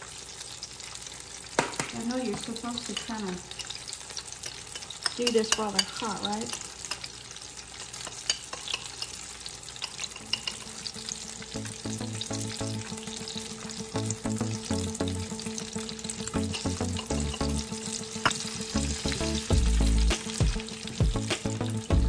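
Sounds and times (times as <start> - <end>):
fritters sizzling in hot oil: 0.0 - 22.0
spoon knocking in oil: 9.8 - 10.7, 18.2 - 18.5.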